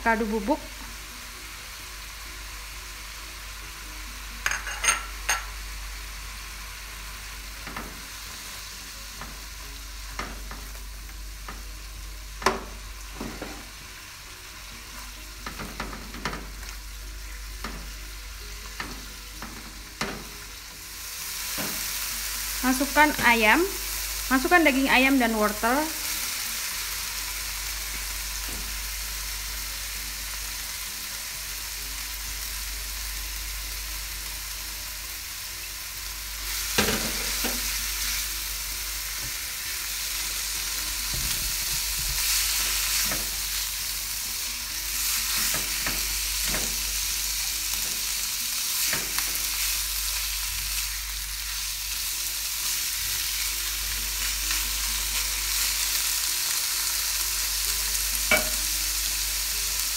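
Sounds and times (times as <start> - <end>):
food sizzling in oil: 0.0 - 59.9
spatula knocking against pan: 58.3 - 58.7.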